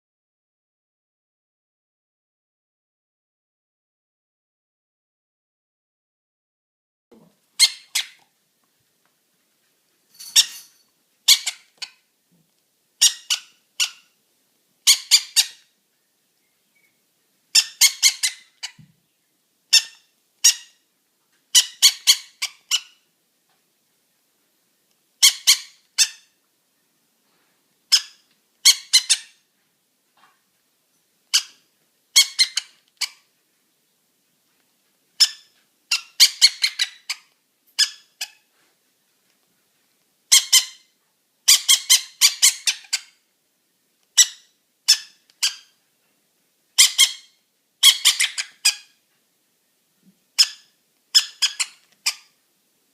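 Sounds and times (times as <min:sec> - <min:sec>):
parrot chick squeaky calls: 0:07.6 - 0:08.2, 0:10.2 - 0:12.1, 0:13.0 - 0:14.2, 0:14.8 - 0:15.7, 0:17.5 - 0:18.8, 0:19.7 - 0:20.9, 0:21.5 - 0:23.1, 0:25.2 - 0:26.4, 0:27.9 - 0:29.5, 0:31.3 - 0:33.3, 0:35.2 - 0:38.5, 0:40.3 - 0:43.2, 0:44.2 - 0:45.8, 0:46.8 - 0:49.0, 0:50.4 - 0:52.4.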